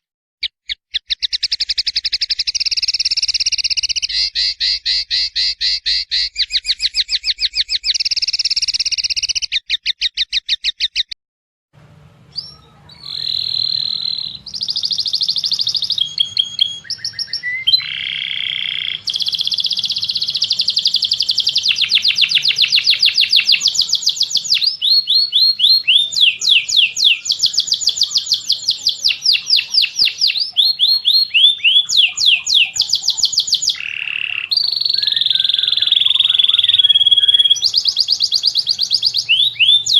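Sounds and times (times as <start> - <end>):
songbird trilling: 0.6 - 11.2, 12.3 - 39.9
bird song with sweeping notes: 12.2 - 39.9.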